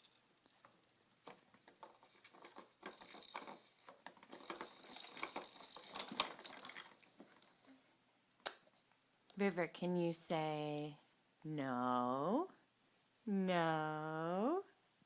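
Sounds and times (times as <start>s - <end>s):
baby toys rattling and crinkling: 0.0s - 7.4s.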